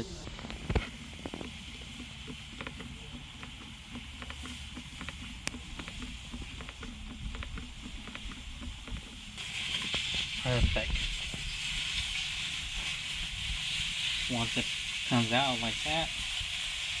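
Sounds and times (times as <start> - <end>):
hand pump clicking: 0.4 - 10.0.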